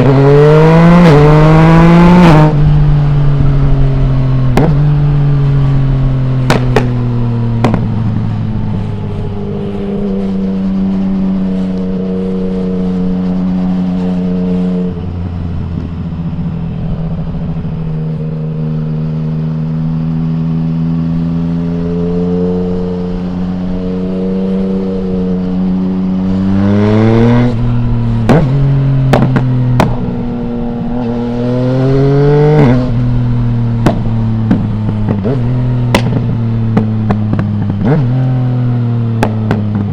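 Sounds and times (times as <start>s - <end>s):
motorcycle engine revving: 0.0s - 39.9s
exhaust pops: 6.4s - 8.1s, 28.2s - 30.1s, 33.8s - 38.0s, 39.1s - 39.9s.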